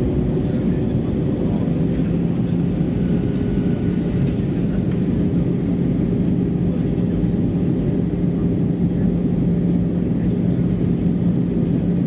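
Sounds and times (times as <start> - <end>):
jet engine cabin roar: 0.0 - 12.0.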